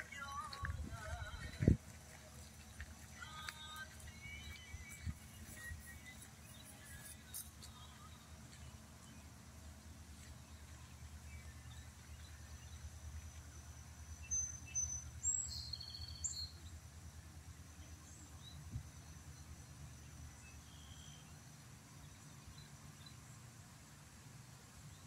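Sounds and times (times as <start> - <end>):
small birds chirping: 0.0 - 16.8
faint high whine: 0.0 - 25.0.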